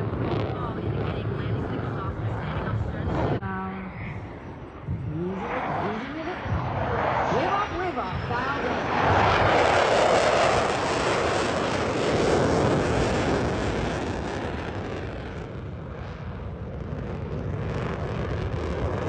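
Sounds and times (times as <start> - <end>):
fighter jets flying past: 4.2 - 19.0.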